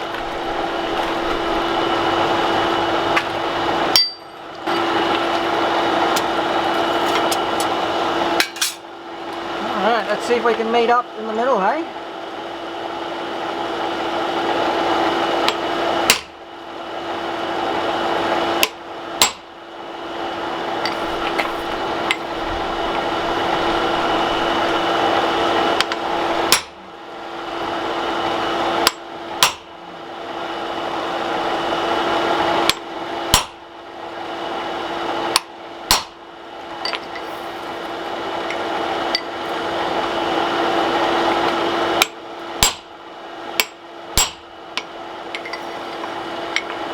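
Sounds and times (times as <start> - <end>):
steady roar with hum: 0.0 - 46.9
hammer striking steel on anvil: 3.9 - 5.0, 15.5 - 16.4, 18.6 - 19.5, 25.8 - 26.8, 28.8 - 29.7, 32.7 - 33.6, 35.4 - 36.2, 42.0 - 42.9, 43.5 - 45.7.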